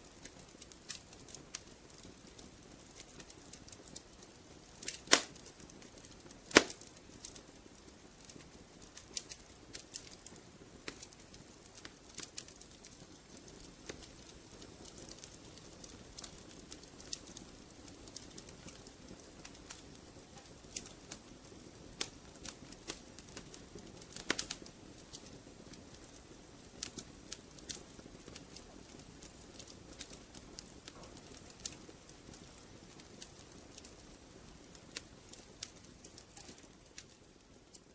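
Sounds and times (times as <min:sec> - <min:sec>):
wood fire crackling and popping: 0:00.0 - 0:37.9.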